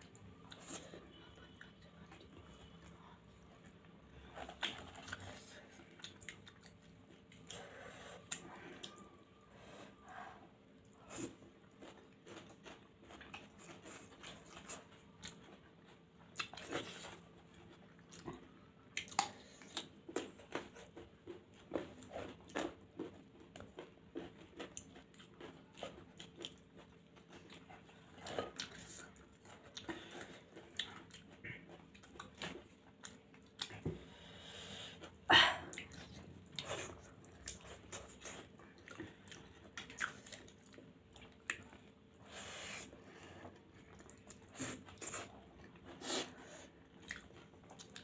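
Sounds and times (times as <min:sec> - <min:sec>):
people chewing and biting: 0:00.0 - 0:48.0.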